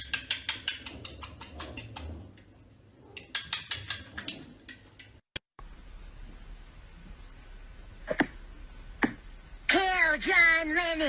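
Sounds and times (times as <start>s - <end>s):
faint low hum: 5.6s - 11.0s.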